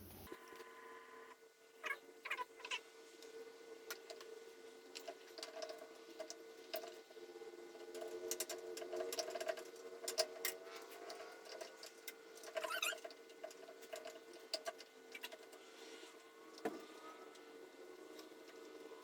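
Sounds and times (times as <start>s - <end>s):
steady hum: 0.0s - 0.4s
brief squeak: 12.6s - 13.0s.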